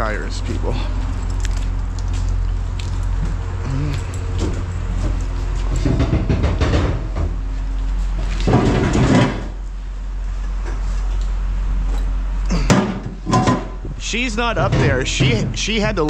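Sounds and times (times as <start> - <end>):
low engine rumble: 0.0 - 16.0
clattering and knocking: 4.4 - 7.4, 8.4 - 9.6, 12.7 - 14.0, 14.6 - 15.6.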